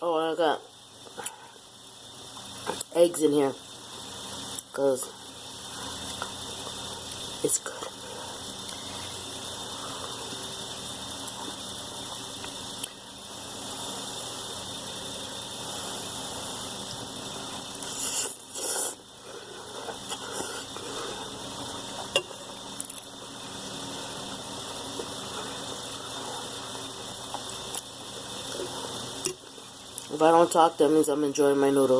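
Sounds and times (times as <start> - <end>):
steady background hiss: 0.0 - 31.9.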